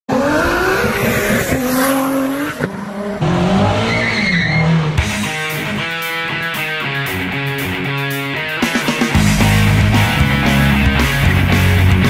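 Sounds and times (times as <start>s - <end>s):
car engines revving: 0.1s - 6.6s
rock music with electric guitar: 5.0s - 12.0s.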